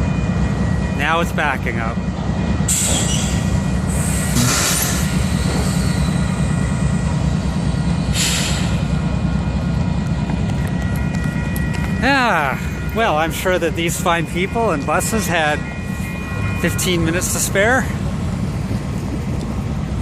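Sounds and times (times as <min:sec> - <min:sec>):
train rumbling: 0:00.0 - 0:20.0
train wheel squeal: 0:02.7 - 0:07.3.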